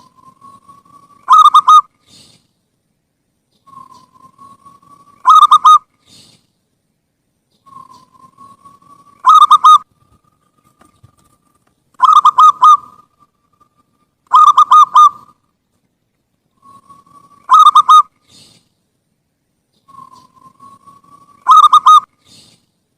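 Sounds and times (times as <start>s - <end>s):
dove cooing: 0.0s - 1.9s, 3.7s - 6.2s, 7.7s - 11.4s, 12.0s - 13.7s, 14.3s - 15.4s, 16.6s - 18.1s, 19.9s - 22.5s.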